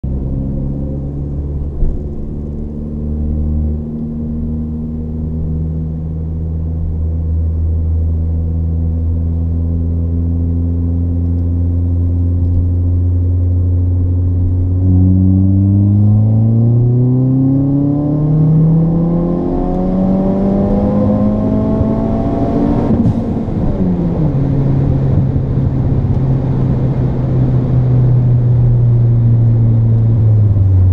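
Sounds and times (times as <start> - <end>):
car engine revving under load: 9.9 - 30.9.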